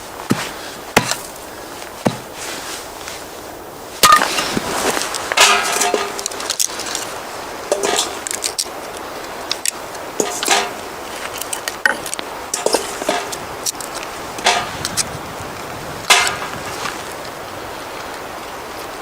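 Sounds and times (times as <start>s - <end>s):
hard objects clinking and clattering: 4.0s - 7.1s, 7.7s - 8.7s, 9.5s - 15.0s.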